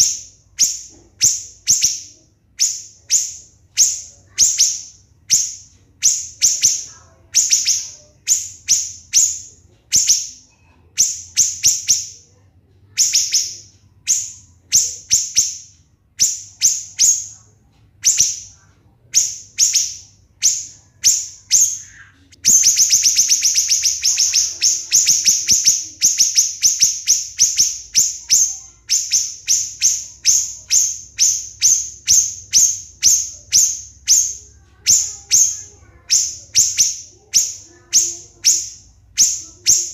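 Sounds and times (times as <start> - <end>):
bird singing shrill chirps: 0.0 - 39.9.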